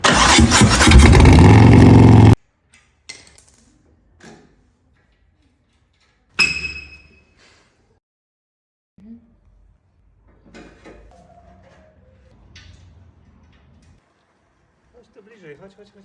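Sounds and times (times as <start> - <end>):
motorcycle engine running loud: 0.0 - 2.4.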